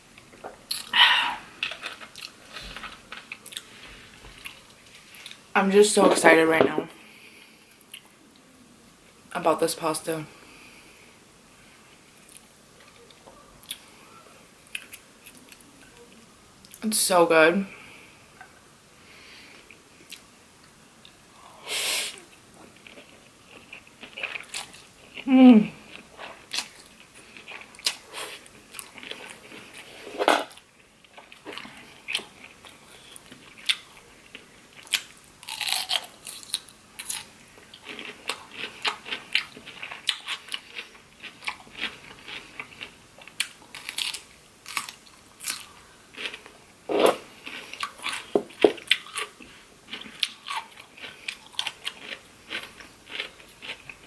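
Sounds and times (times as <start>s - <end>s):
person chewing food: 0.1s - 5.4s, 14.6s - 16.8s, 22.2s - 54.0s.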